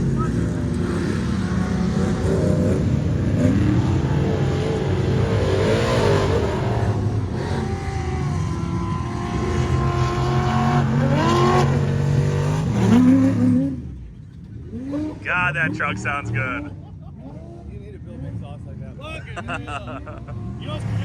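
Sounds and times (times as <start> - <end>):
truck engine revving: 0.0 - 13.8, 14.5 - 16.8.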